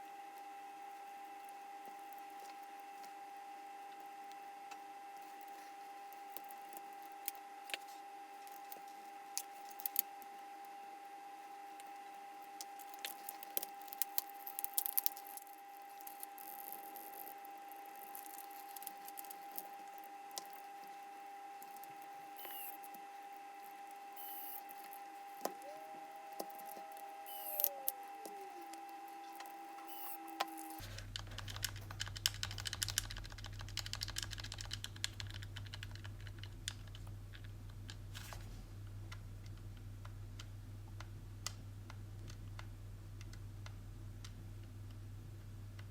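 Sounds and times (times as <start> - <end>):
faint steady tone: 0.0 - 30.8.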